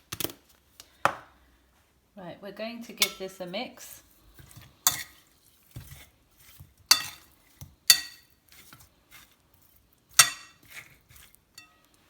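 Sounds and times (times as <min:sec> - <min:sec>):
utensil clinking against bowl: 0:03.0 - 0:03.3, 0:06.9 - 0:07.3, 0:07.9 - 0:08.3, 0:10.1 - 0:10.8
faint scraping and rubbing: 0:08.5 - 0:09.9, 0:10.5 - 0:11.9.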